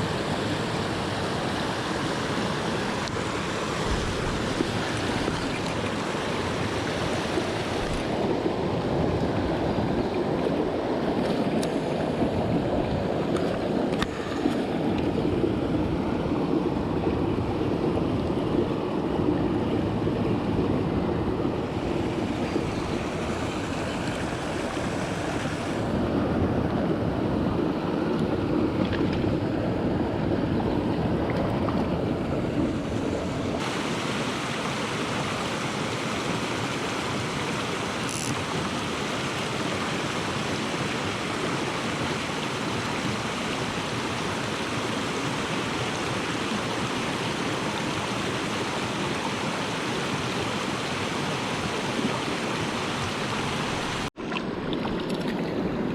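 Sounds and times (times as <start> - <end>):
mountain stream rushing: 0.0 - 55.9
wind on microphone: 0.0 - 55.9.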